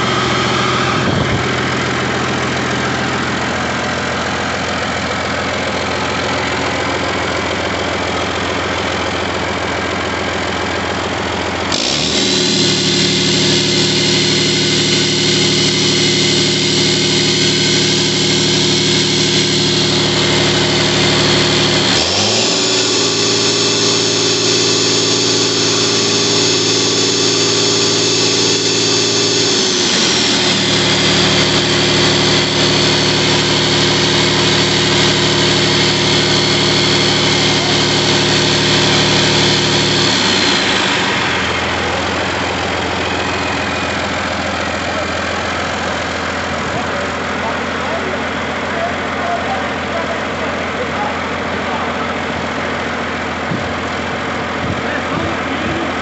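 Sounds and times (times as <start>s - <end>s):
diesel engine running: 0.0s - 56.0s
high engine whine: 0.0s - 56.0s.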